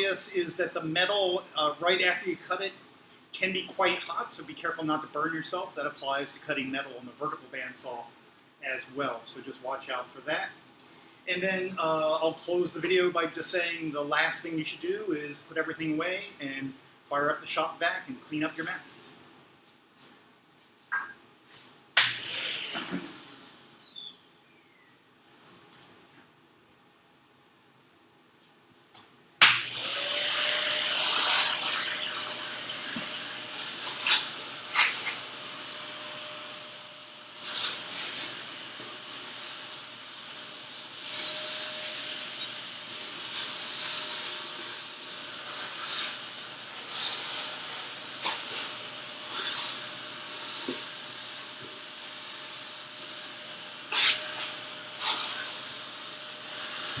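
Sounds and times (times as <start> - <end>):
shop vacuum running: 29.4 - 57.0
debris clicking in vacuum: 30.0 - 43.5.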